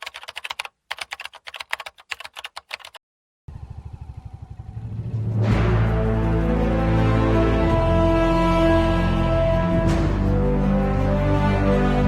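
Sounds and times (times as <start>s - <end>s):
rapid clicking: 0.0s - 3.0s.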